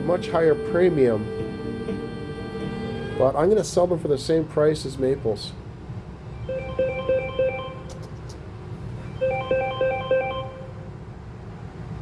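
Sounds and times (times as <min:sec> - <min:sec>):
phone ringtone: 0:06.4 - 0:07.9, 0:09.1 - 0:10.8.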